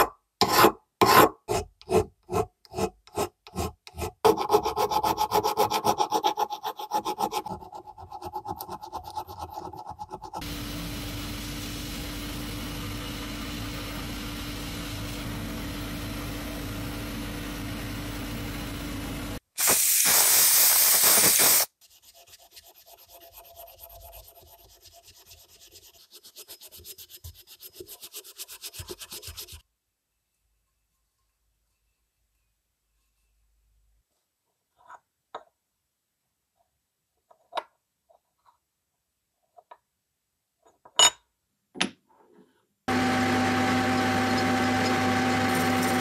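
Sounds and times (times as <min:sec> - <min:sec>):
sanding strokes: 0:01.9 - 0:10.5, 0:21.2 - 0:29.6
loud hiss: 0:19.5 - 0:21.7
power tool humming: 0:42.9 - 0:46.0.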